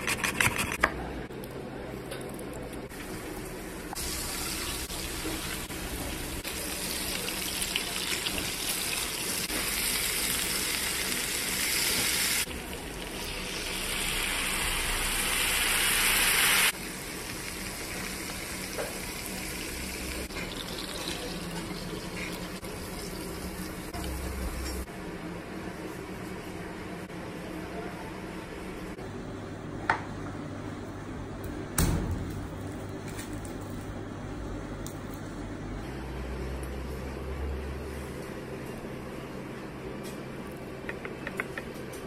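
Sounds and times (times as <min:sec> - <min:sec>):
fish sizzling in a frying pan: 0:13.6 - 0:20.9.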